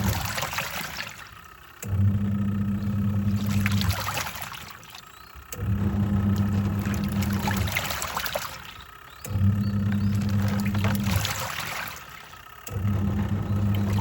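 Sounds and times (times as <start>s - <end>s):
washing machine agitating: 0.0s - 14.0s
washing machine motor humming: 0.0s - 14.0s
water sloshing and churning: 0.0s - 14.0s.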